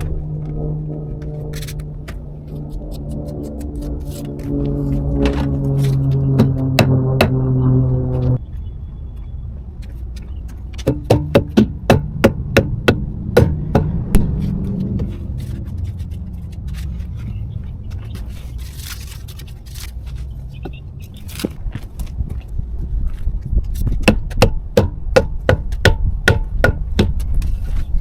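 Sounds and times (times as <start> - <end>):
low steady rumble: 0.0 - 20.6
sharp knocks: 10.8 - 15.1.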